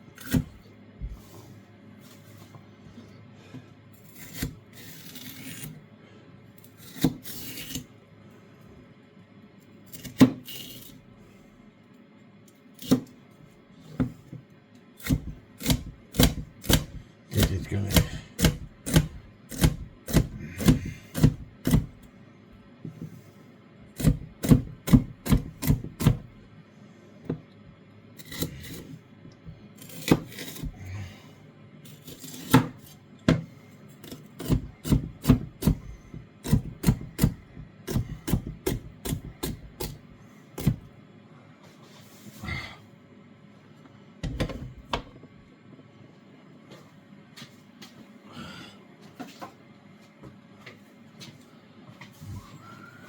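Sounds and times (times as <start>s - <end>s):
knife chopping on a board: 0.2s - 0.6s, 6.8s - 7.8s, 15.0s - 22.0s, 24.0s - 26.3s, 29.9s - 30.8s, 32.0s - 40.0s, 40.6s - 40.9s.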